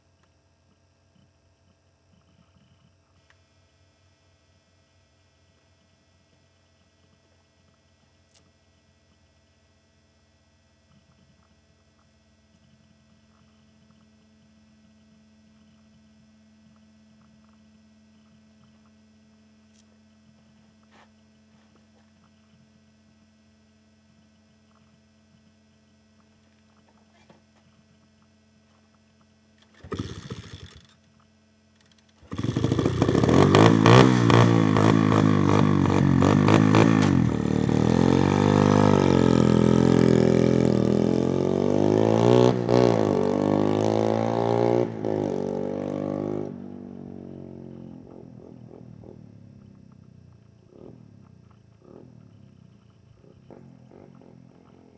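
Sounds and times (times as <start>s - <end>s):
faint steady hum: 0.0s - 43.5s, 46.2s - 54.9s
dirt bike engine revving: 29.7s - 30.9s, 32.2s - 49.6s.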